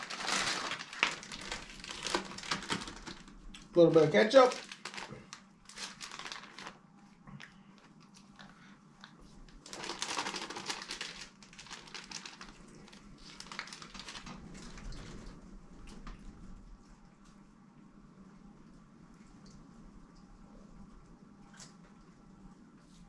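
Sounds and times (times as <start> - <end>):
food and utensils crinkling and clicking: 0.0 - 16.3.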